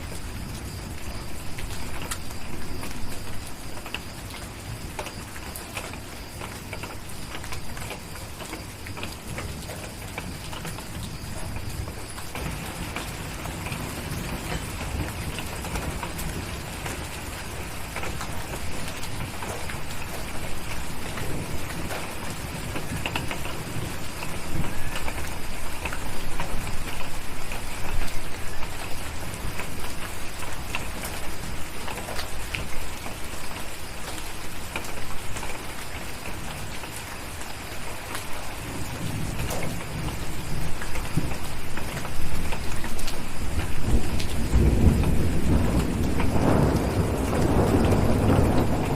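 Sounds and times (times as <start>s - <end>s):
rain pattering: 0.0s - 48.9s
low thunder rumbling: 9.3s - 31.7s, 38.5s - 48.9s.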